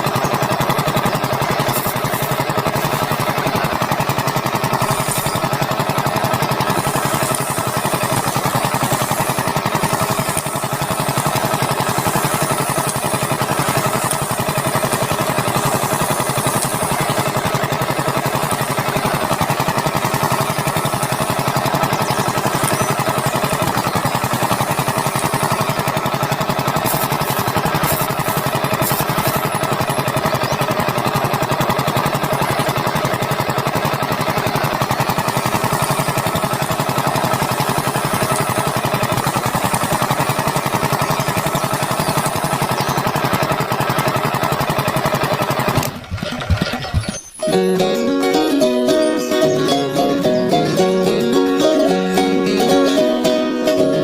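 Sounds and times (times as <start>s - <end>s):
small electric motor buzzing: 0.6s - 33.2s, 34.3s - 45.0s.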